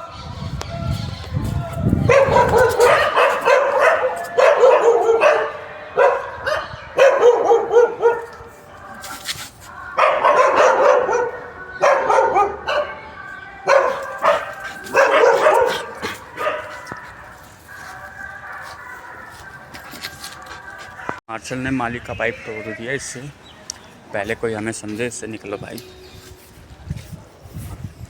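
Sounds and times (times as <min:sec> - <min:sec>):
dog barking and yelping: 0:02.0 - 0:08.4, 0:09.9 - 0:13.0, 0:13.7 - 0:19.0.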